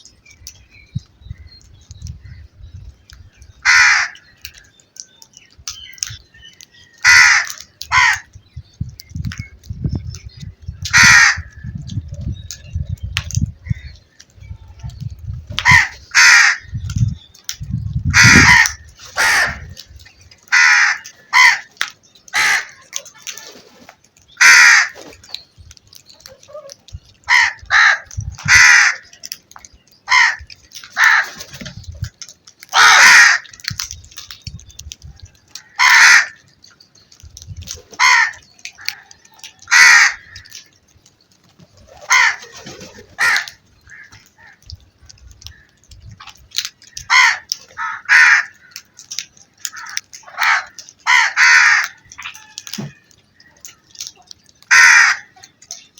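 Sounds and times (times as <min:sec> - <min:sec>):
crows cawing: 0:03.6 - 0:04.8, 0:06.8 - 0:08.4, 0:10.9 - 0:11.7, 0:15.6 - 0:16.7, 0:18.1 - 0:19.8, 0:20.4 - 0:23.0, 0:24.3 - 0:25.1, 0:27.3 - 0:29.2, 0:30.1 - 0:31.4, 0:32.7 - 0:33.7, 0:35.5 - 0:36.5, 0:38.0 - 0:40.8, 0:42.0 - 0:42.5, 0:43.2 - 0:44.7, 0:46.8 - 0:54.0, 0:54.7 - 0:55.5.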